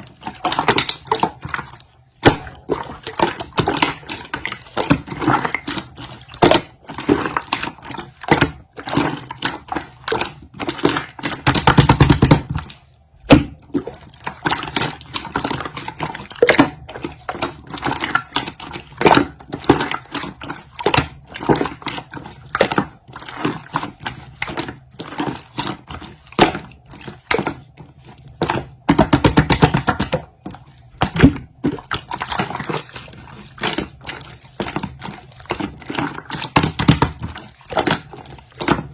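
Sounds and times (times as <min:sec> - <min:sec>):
slime squishing by hand: 0:00.0 - 0:38.9.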